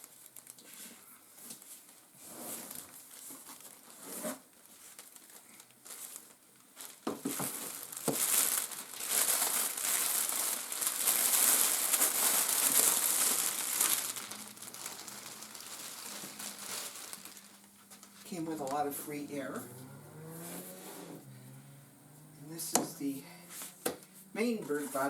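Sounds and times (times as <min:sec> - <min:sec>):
plastic packing crinkling: 0:00.0 - 0:00.8, 0:02.6 - 0:19.6.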